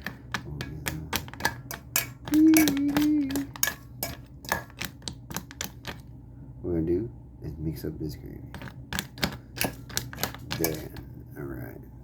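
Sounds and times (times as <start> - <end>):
spoon stirring dog food in bowl: 0.0 - 6.1, 8.5 - 11.1.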